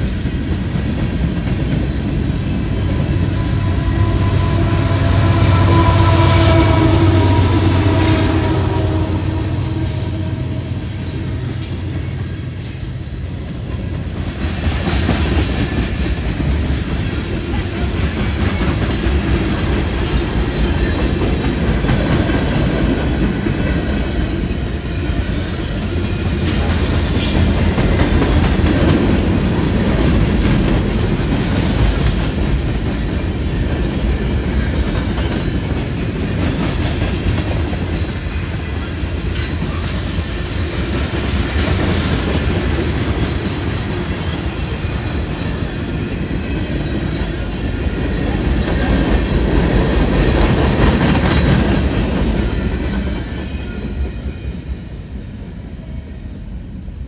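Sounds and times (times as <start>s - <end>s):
train wheels clicking on rail joints: 0.0s - 54.6s
train rumble: 0.0s - 57.0s.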